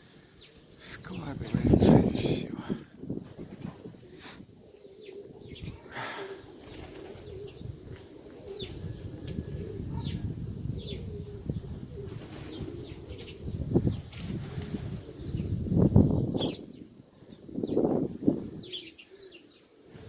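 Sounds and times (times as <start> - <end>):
wind rumble on microphone: 1.1 - 4.6, 7.2 - 18.8
pigeons cooing: 1.4 - 20.0
wings flapping: 3.1 - 4.3, 6.3 - 9.6, 12.0 - 15.2.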